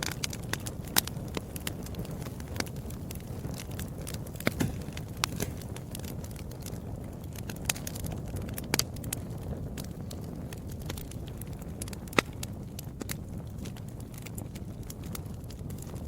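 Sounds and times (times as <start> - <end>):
low rumble of flames: 0.0 - 16.0
wood fire crackling: 0.0 - 16.0
sharp pops: 4.3 - 6.2.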